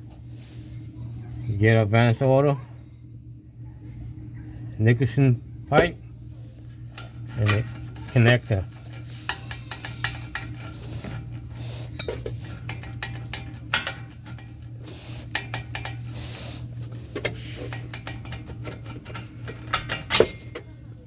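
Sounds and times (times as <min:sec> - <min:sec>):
steady low hum: 0:00.0 - 0:21.0
metal pipe clinking and knocking: 0:05.7 - 0:06.0, 0:06.9 - 0:20.8.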